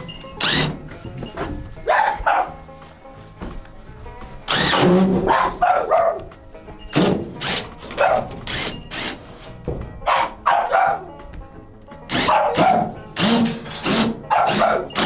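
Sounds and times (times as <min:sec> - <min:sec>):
background music: 0:00.0 - 0:15.0
dog barking: 0:01.8 - 0:02.6, 0:05.1 - 0:06.3, 0:07.9 - 0:08.4, 0:10.0 - 0:11.1, 0:12.1 - 0:13.0, 0:14.2 - 0:15.0.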